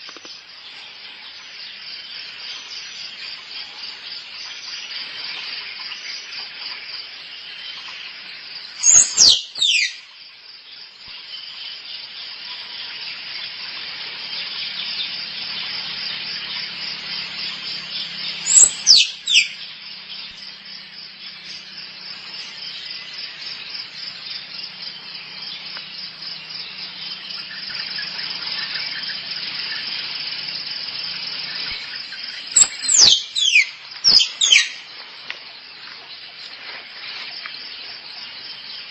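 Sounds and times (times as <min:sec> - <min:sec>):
insects chorus: 0:00.0 - 0:38.9
squirrel squeaky chirps: 0:08.8 - 0:10.0, 0:18.4 - 0:19.5, 0:32.6 - 0:34.7.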